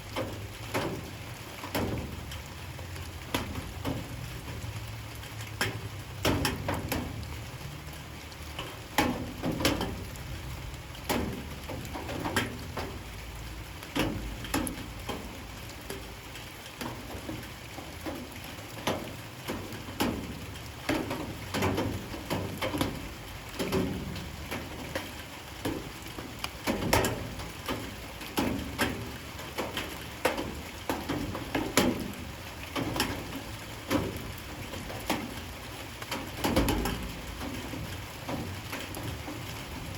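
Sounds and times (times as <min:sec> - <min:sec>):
light rain pattering: 0:00.0 - 0:39.9
raindrops striking a surface: 0:00.0 - 0:39.9.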